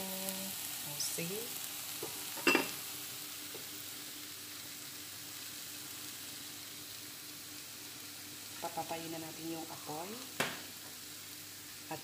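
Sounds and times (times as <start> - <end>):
food sizzling in a pan: 0.0 - 12.0
glass lid clinking on pot: 2.4 - 2.8.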